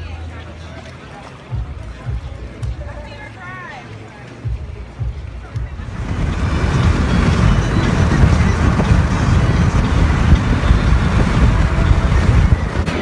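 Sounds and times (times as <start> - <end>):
wind buffeting microphone: 4.4 - 13.0
moving vehicle rumble: 4.6 - 13.0.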